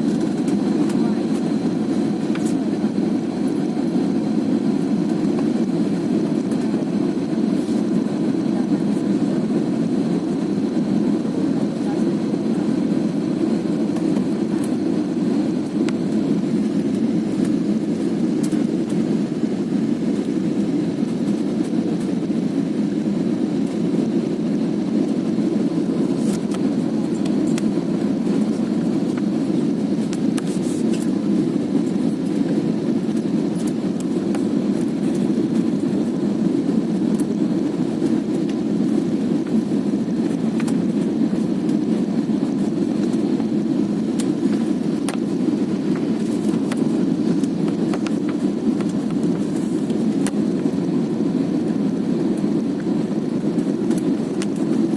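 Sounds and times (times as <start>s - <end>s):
airliner cabin engine rush: 0.0s - 54.9s.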